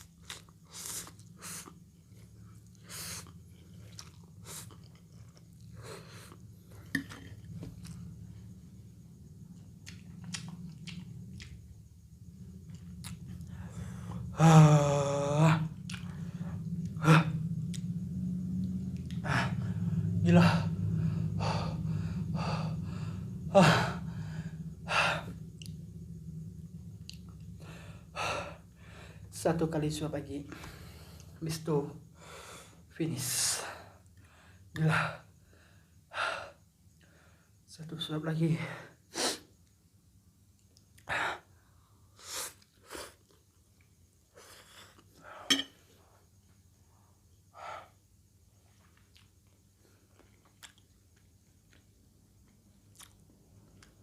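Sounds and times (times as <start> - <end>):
low steady hum: 0.0 - 42.1, 43.4 - 54.0
chewing noodles: 2.7 - 6.4, 9.8 - 11.6, 48.7 - 54.0.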